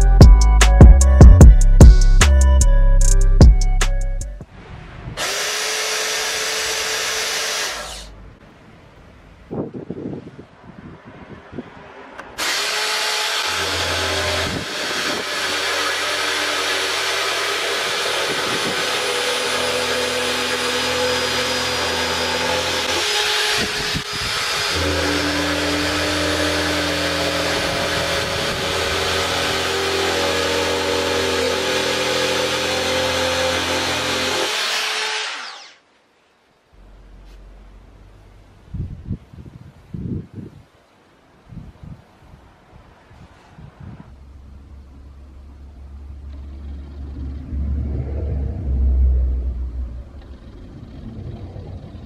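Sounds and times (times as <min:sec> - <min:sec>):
electric drill running: 0:05.2 - 0:08.2, 0:12.4 - 0:35.8.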